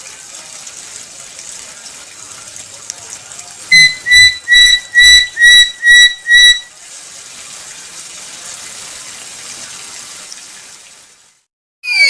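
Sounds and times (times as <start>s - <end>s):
parrot whistling: 3.7s - 6.7s.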